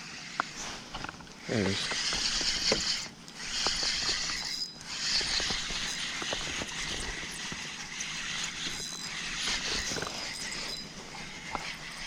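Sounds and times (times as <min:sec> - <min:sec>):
fishing reel gears whirring: 0:01.4 - 0:12.0
small reel clicks: 0:01.8 - 0:12.0.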